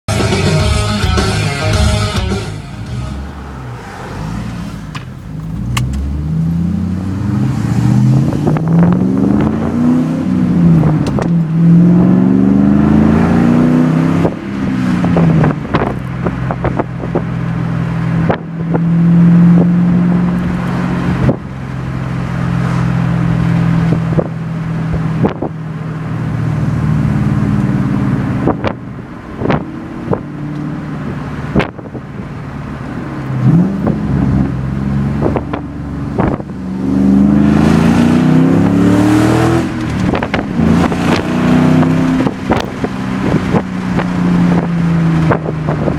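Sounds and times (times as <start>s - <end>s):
car engine revving: 0.1s - 45.9s
wind buffeting microphone: 33.0s - 36.7s, 39.2s - 45.9s.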